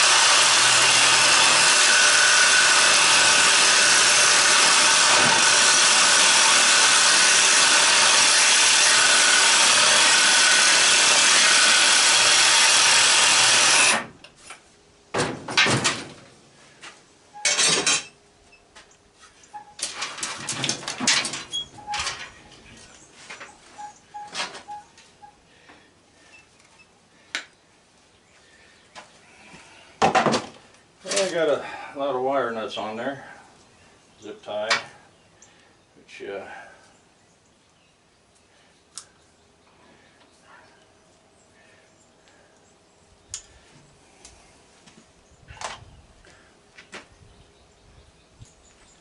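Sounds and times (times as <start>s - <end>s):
power tool cutting copper tubing: 0.0s - 14.1s
metal knocks and clanks: 19.8s - 22.4s.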